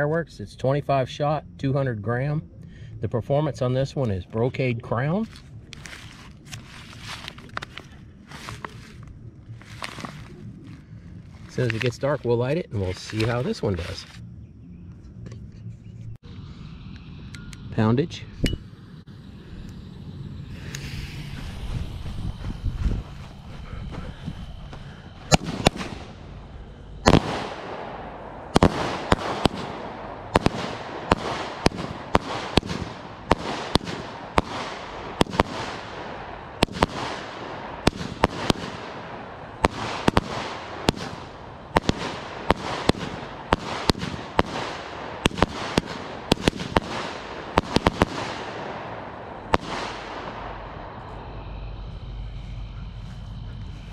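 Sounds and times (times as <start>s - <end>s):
firework hiss: 16.3s - 52.6s
firework bangs: 24.4s - 51.8s.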